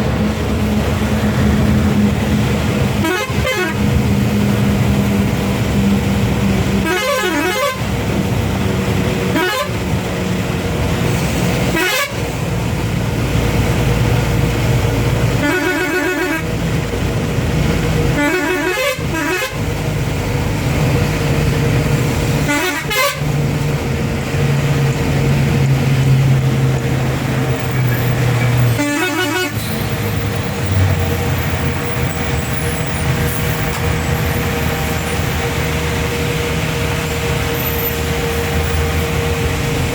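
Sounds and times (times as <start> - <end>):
heavy vehicle engines running: 0.0 - 39.9
vehicles passing: 0.0 - 39.9
horns honking: 2.6 - 5.4, 6.5 - 8.2, 9.2 - 10.0, 11.6 - 12.4, 15.2 - 16.8, 18.0 - 19.8, 22.1 - 23.4, 27.1 - 39.9.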